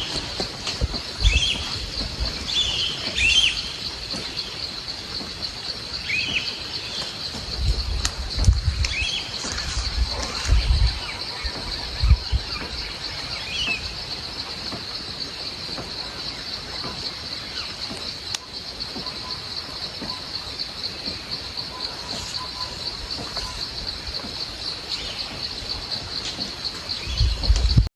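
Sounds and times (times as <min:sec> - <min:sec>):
low thumps: 0:00.0 - 0:16.2
bird chirps: 0:00.0 - 0:27.8
insect chorus buzzing: 0:00.0 - 0:27.9.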